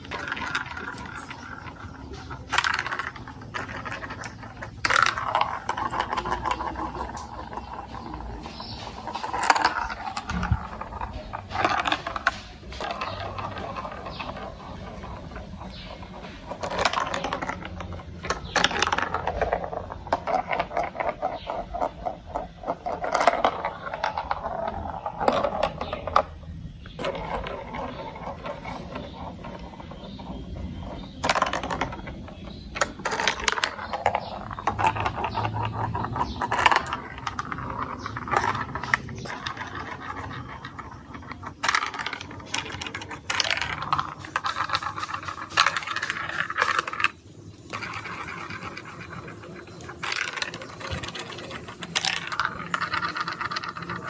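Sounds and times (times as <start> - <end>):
marbles rattling through plastic track: 0.0 - 54.0.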